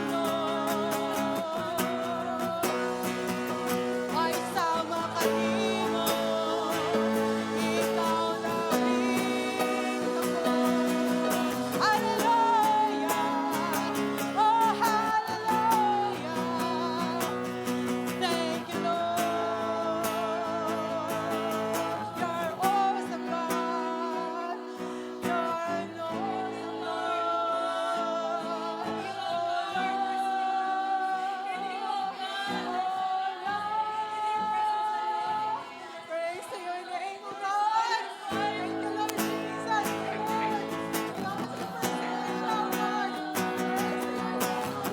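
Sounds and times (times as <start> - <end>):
guitar chords: 0.0 - 31.2, 38.3 - 44.9
person singing wavering melody: 0.0 - 31.9
keyboard chords: 1.9 - 18.2.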